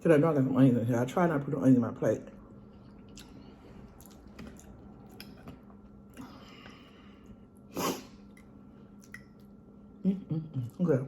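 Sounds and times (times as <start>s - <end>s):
person chewing food: 2.6s - 9.6s.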